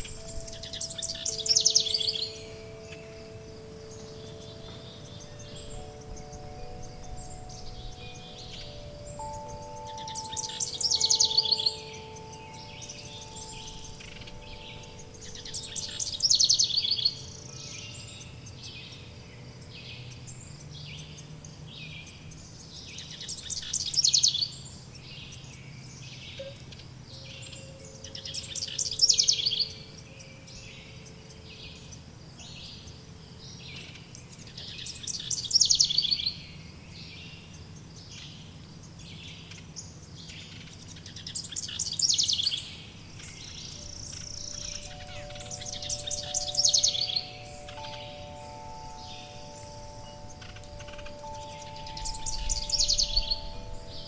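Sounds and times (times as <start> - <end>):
bird trilling: 0.0 - 21.4, 37.5 - 54.0
birds chirping: 0.0 - 54.0
faint wind chimes: 0.0 - 54.0.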